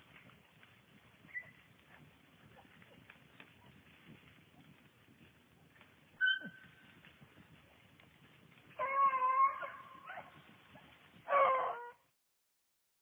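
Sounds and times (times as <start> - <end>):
beagle baying: 6.2 - 6.6, 8.8 - 10.4, 11.2 - 12.0.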